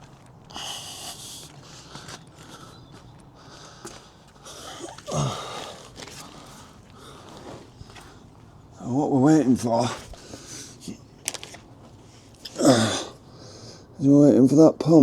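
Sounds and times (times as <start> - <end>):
rustling and scuffing: 0.0 - 8.7.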